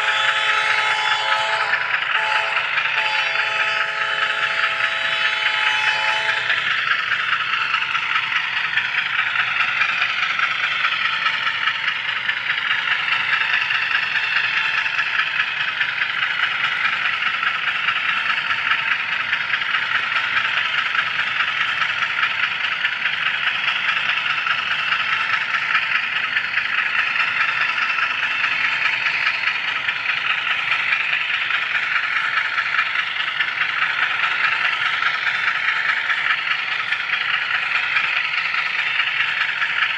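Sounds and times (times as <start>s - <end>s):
model locomotive horn chord: 0.0s - 7.5s
model train wheels rattling: 0.0s - 39.9s.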